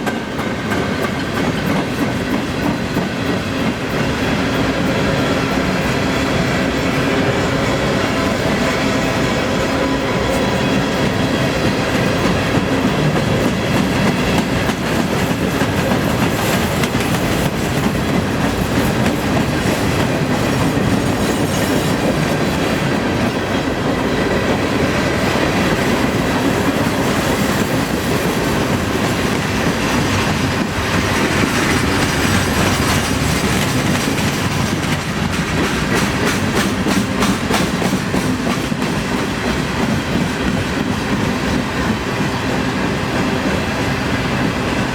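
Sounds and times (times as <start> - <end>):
wheels clicking over rail joints: 0.0 - 7.4, 9.7 - 42.0
freight train rumbling past: 0.0 - 44.9.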